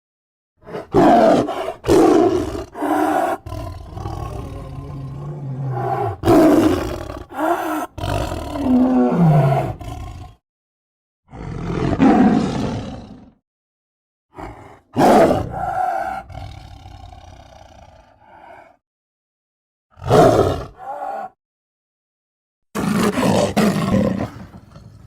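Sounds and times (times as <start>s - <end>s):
low growl: 0.6s - 10.4s
monster roaring: 0.7s - 10.4s, 11.3s - 13.4s, 20.0s - 21.4s.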